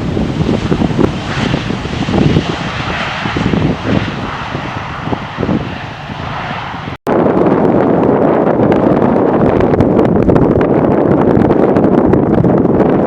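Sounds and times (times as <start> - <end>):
jet engines passing: 0.0 - 9.8
wind buffeting microphone: 0.0 - 13.0.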